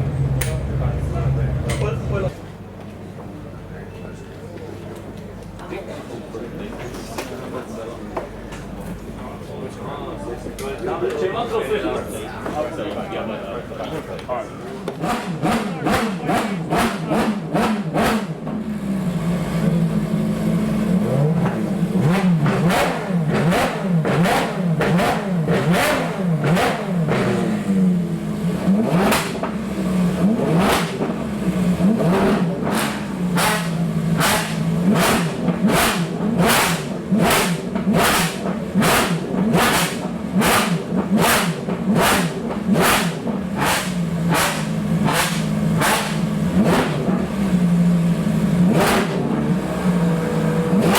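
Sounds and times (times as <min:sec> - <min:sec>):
sports car engine revving: 0:00.0 - 0:02.4, 0:14.8 - 0:50.9.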